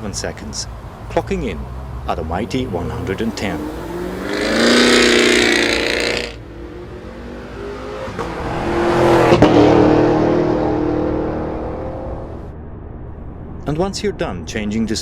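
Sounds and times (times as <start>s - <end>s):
car engine accelerating hard: 1.3s - 12.5s.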